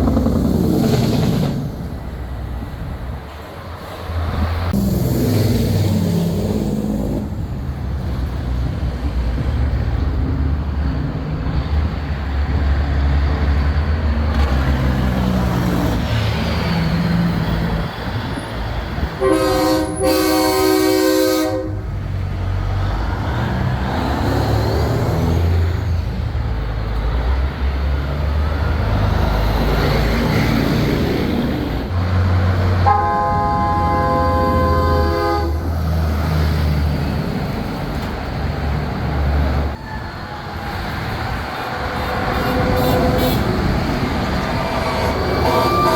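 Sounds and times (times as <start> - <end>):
trucks rumbling past: 0.0 - 45.9
truck air horn blast: 19.2 - 21.9, 32.8 - 35.7, 41.8 - 43.9, 44.8 - 45.9.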